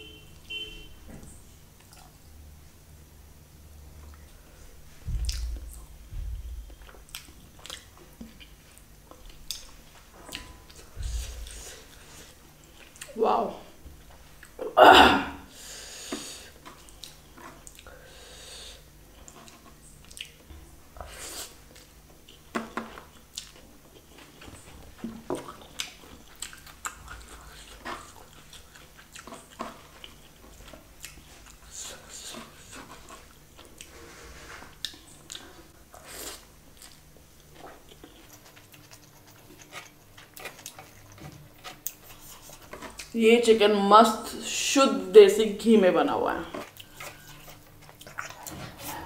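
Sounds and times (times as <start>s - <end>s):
person chewing food: 5.1s - 13.2s, 14.0s - 14.6s, 15.9s - 43.2s, 46.4s - 49.0s.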